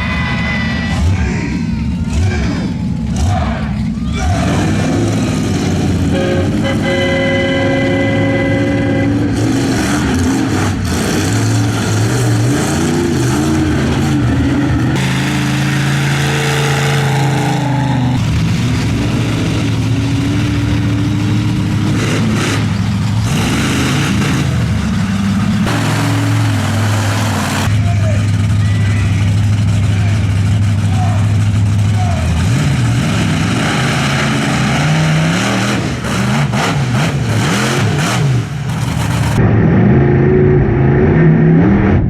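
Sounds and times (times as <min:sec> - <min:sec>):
truck engine revving: 0:00.0 - 0:42.0.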